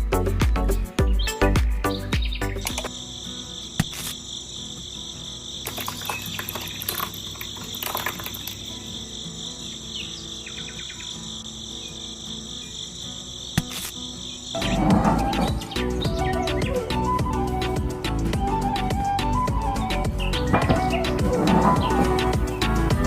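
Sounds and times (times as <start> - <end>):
crickets chirring: 2.4 - 22.9
sharp clicks: 2.6 - 2.9.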